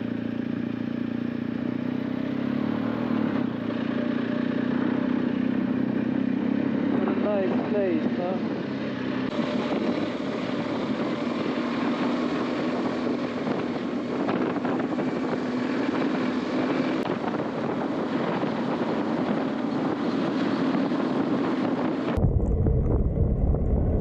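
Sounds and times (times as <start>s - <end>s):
motorcycle engine riding: 0.0s - 24.0s
wind rush on microphone: 6.8s - 24.0s.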